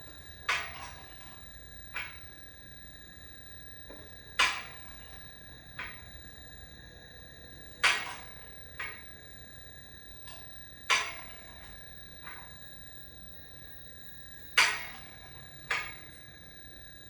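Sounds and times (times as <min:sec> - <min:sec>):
metallic clanks with ringing: 0:00.2 - 0:02.4, 0:07.8 - 0:09.2, 0:10.2 - 0:12.6, 0:14.5 - 0:16.2.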